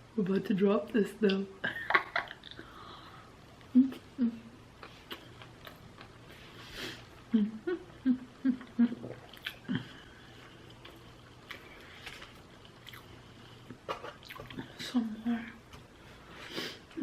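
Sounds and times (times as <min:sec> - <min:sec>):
low hums or grunts: 0:03.7 - 0:04.6, 0:07.2 - 0:10.4
person chewing: 0:04.7 - 0:07.3, 0:08.6 - 0:14.8.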